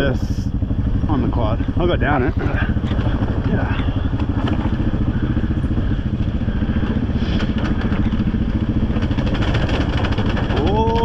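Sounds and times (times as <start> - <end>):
quad engine running: 0.0 - 11.0
clatter: 2.4 - 5.3, 6.1 - 11.0.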